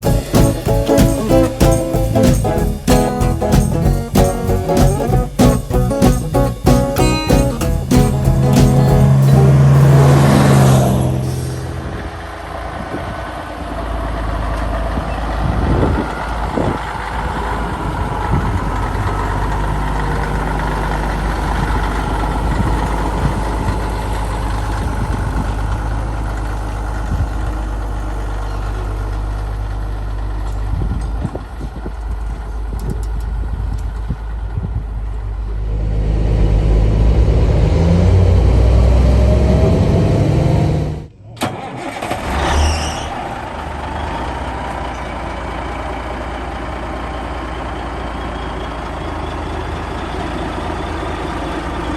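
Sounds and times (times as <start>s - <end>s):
diesel truck engine rumbling: 0.0s - 51.9s.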